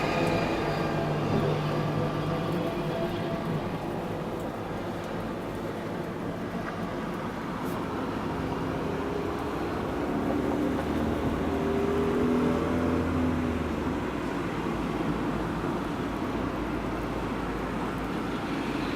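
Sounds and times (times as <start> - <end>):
blizzard wind rushing: 0.0 - 12.6.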